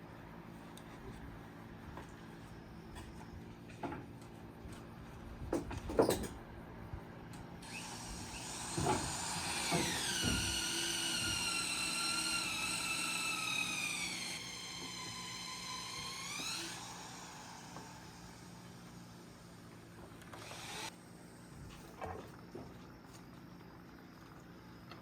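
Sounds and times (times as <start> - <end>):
power tool motor whining: 7.6 - 19.4, 20.1 - 20.9.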